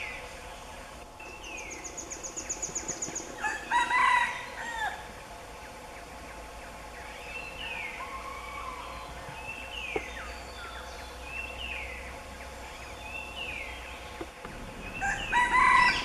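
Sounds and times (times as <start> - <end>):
rooster crowing: 3.4 - 5.1, 8.0 - 9.2, 14.9 - 16.0
thin descending bird calls: 12.7 - 16.0.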